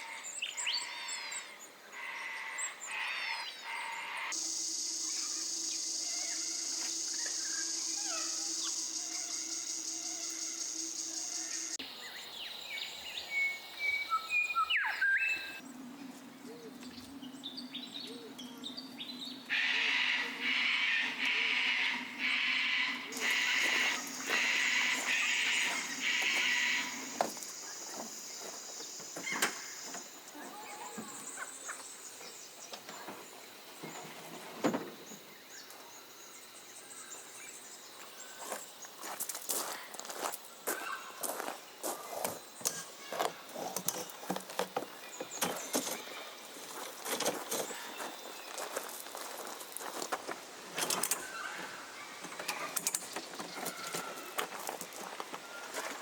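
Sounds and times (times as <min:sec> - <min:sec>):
insects and birds: 0:00.0 - 0:56.0
high insect trill: 0:04.0 - 0:12.2, 0:19.5 - 0:31.4
whistled bird calls: 0:13.3 - 0:15.6.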